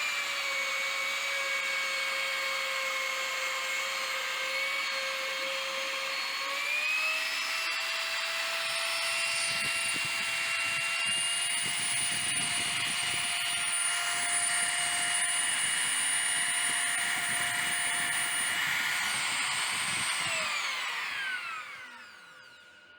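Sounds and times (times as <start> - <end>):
router spindle whine: 0.0 - 22.9
rough cutting noise: 9.3 - 22.8.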